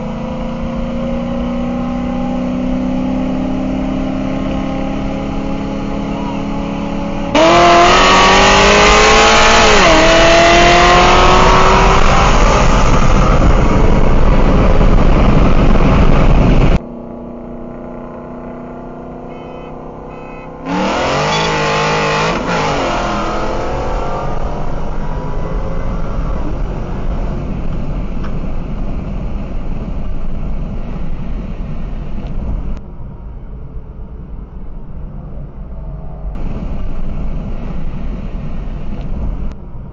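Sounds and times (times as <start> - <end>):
car engine accelerating hard: 0.0 - 32.8.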